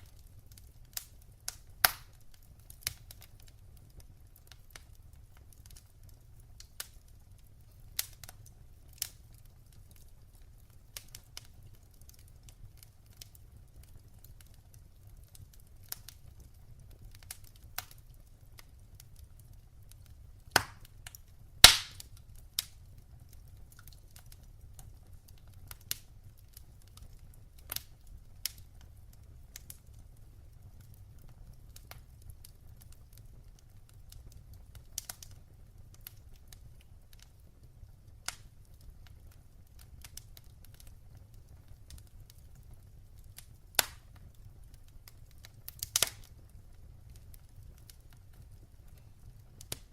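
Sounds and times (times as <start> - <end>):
fire crackling and popping: 0.0 - 49.9.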